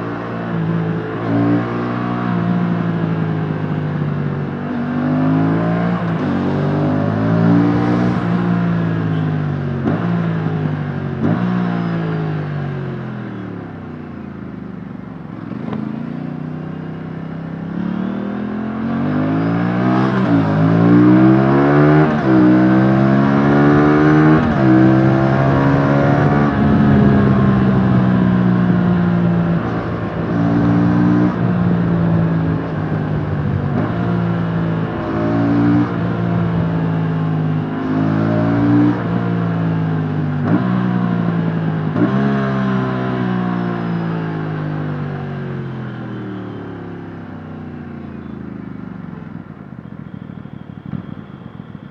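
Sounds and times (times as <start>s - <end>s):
motorcycle engine revving: 17.5s - 44.0s.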